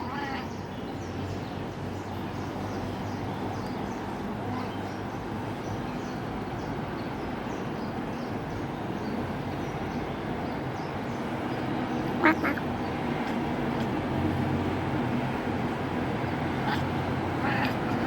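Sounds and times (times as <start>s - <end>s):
cat chattering chirps: 12.2s - 12.7s.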